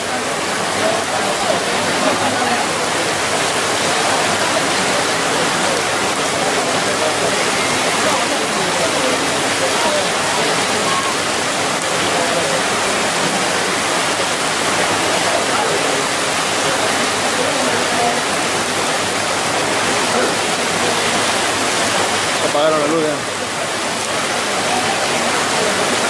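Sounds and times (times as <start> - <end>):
faint voices: 0.0 - 26.0
heavy rain pouring: 0.0 - 26.0.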